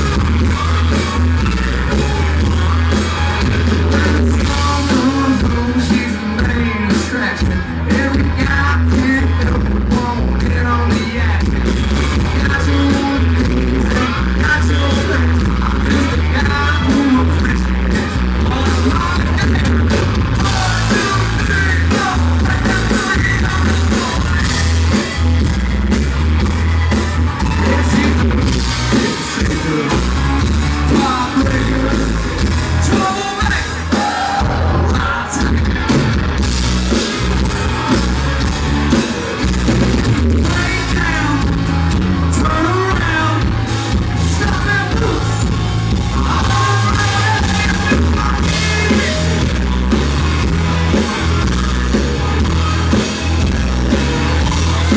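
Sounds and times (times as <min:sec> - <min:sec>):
country-rock band playing: 0:00.0 - 0:54.9
person singing lead vocal: 0:03.6 - 0:25.2, 0:27.5 - 0:36.1, 0:40.4 - 0:50.1.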